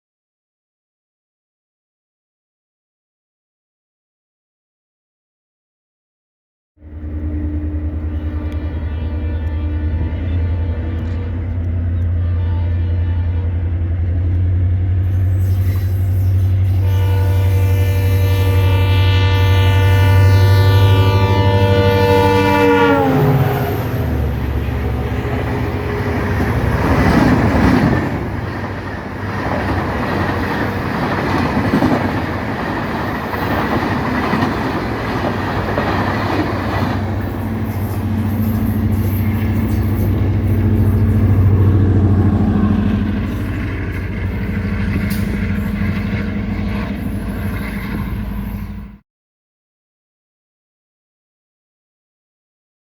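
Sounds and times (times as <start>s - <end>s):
locomotive air horn: 6.8s - 13.9s, 15.0s - 28.7s, 36.8s - 49.0s
diesel locomotive engine drone: 6.8s - 49.0s
rail and wheel noise: 6.8s - 49.0s.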